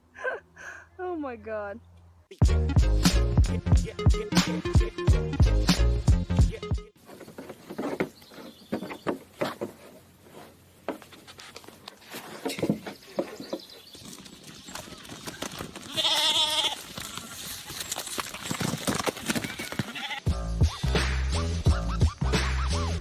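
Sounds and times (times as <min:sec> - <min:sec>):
rustling: 0:07.0 - 0:20.2
livestock bleating: 0:15.8 - 0:17.4, 0:19.5 - 0:20.3.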